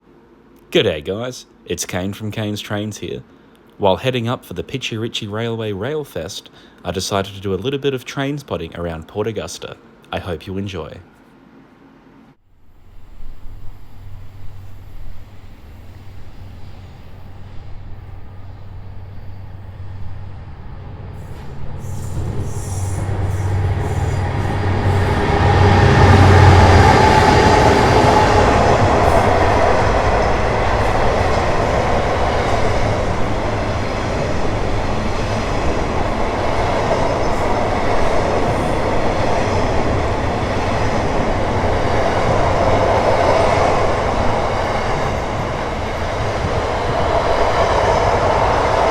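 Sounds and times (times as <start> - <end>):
locomotive engine hum: 12.7 - 48.9
train wagons rolling by: 13.6 - 48.9.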